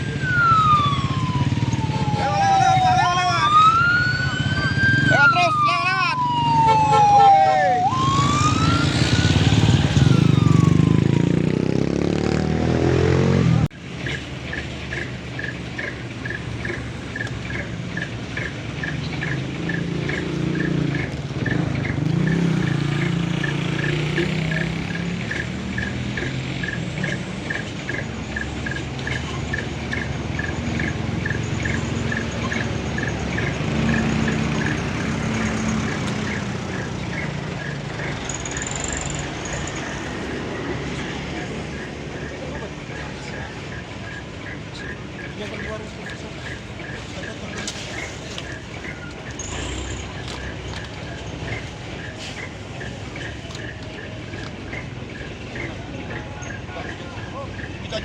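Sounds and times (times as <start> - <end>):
truck engine running: 0.0 - 12.8, 13.4 - 58.0
fast regular ticking: 13.8 - 40.6.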